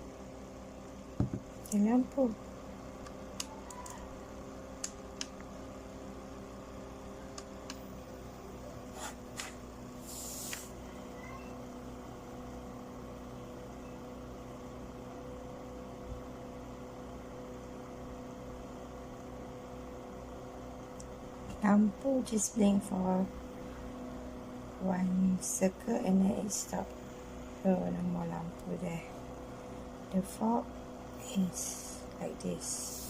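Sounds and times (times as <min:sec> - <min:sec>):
humidifier low hum: 0:00.0 - 0:33.0
short hiss: 0:10.0 - 0:10.7.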